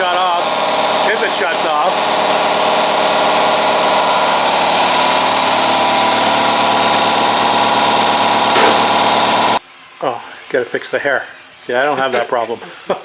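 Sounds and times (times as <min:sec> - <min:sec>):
air compressor running: 0:00.0 - 0:09.6.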